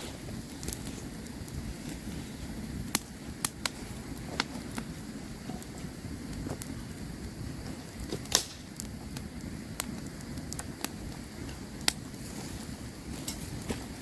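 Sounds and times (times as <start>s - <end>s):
burning wood crackling: 0.0s - 14.0s
low rumble of flames: 0.0s - 14.0s.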